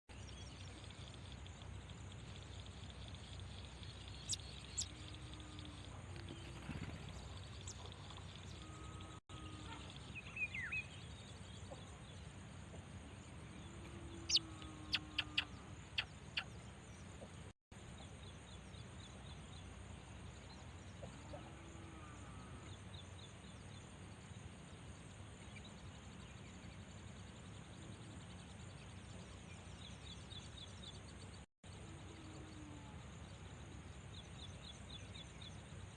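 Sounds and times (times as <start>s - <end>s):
small birds chirping: 0.1s - 21.4s
faint outdoor hiss: 0.1s - 35.9s.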